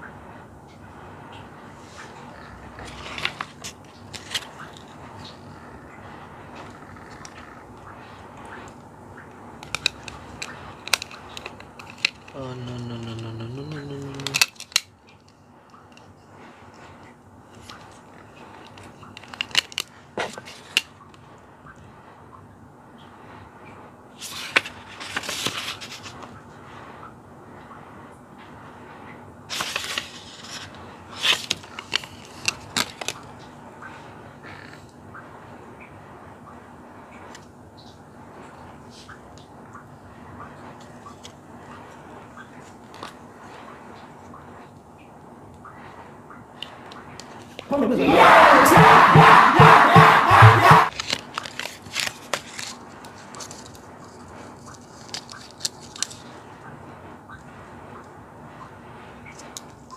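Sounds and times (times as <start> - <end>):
plastic rustle: 1.8 - 5.9, 9.6 - 21.1, 24.2 - 26.4, 29.5 - 33.6, 50.9 - 56.5
plastic parts clicking and rattling: 2.4 - 5.4, 9.6 - 12.4, 14.0 - 16.1, 17.5 - 21.0, 29.5 - 33.3, 50.9 - 56.3
sharp plastic clicks: 9.6 - 12.4, 18.6 - 21.2, 31.2 - 33.3
plastic parts clattering: 9.6 - 12.5, 18.6 - 20.9, 29.5 - 33.2
voice and crowd noise: 47.7 - 50.9.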